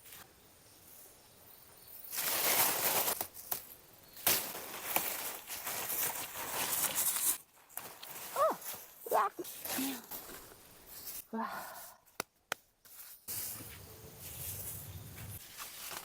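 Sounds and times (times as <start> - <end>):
rustling and crackling: 2.0 - 11.3, 12.8 - 16.0.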